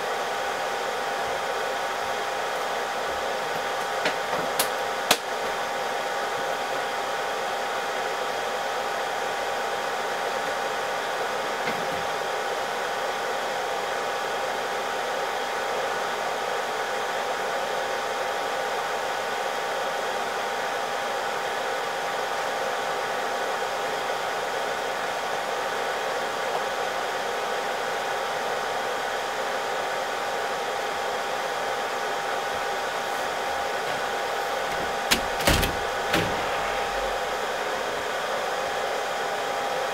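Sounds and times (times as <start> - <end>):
fan whine: 32.2 - 38.9.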